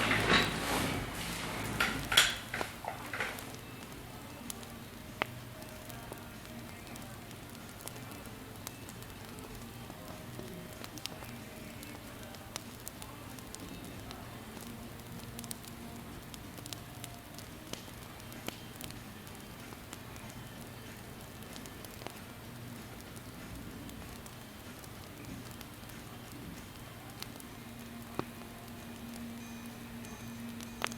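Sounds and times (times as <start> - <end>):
campfire crackling: 0.0 - 30.9.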